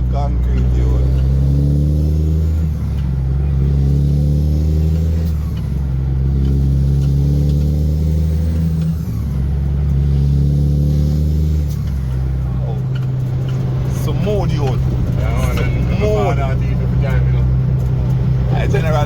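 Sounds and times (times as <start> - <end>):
truck engine under load: 0.0 - 19.0.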